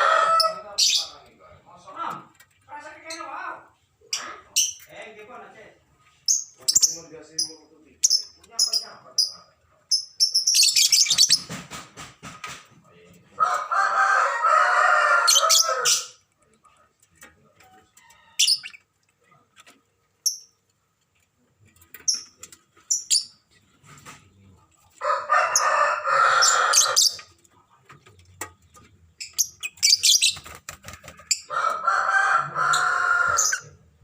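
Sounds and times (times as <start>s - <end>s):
rooster crowing: 0.0s - 0.6s, 13.4s - 16.0s, 25.0s - 27.1s, 31.5s - 33.6s
high bird chirps: 6.3s - 11.6s, 18.3s - 18.9s, 29.2s - 30.5s.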